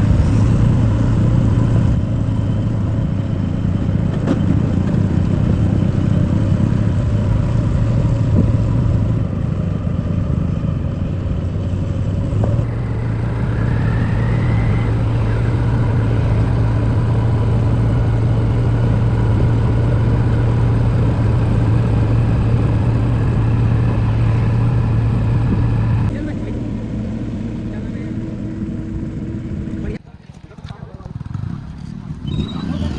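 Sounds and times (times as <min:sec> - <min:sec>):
brief rising whine: 0:00.0 - 0:02.0, 0:12.6 - 0:26.1
diesel engine running under load: 0:00.0 - 0:30.0.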